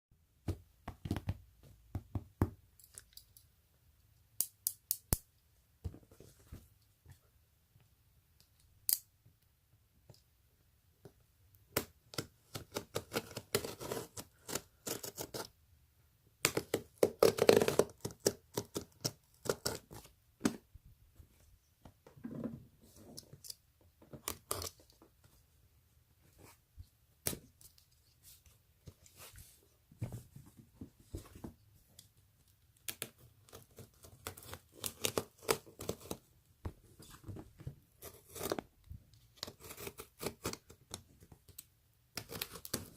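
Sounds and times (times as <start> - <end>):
packaging being cut and torn: 16.5 - 20.0.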